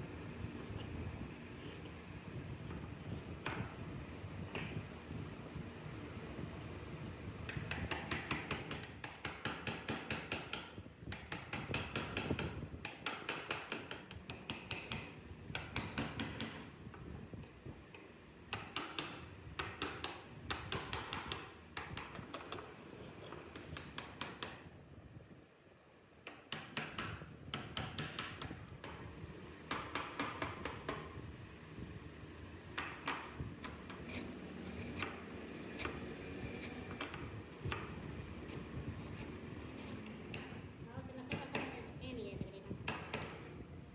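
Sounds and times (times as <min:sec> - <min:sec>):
carving tool tapping on wood: 0:02.7 - 0:03.8, 0:07.5 - 0:17.0, 0:17.9 - 0:24.7, 0:26.2 - 0:29.0, 0:29.7 - 0:31.2, 0:32.7 - 0:41.9, 0:42.9 - 0:43.5.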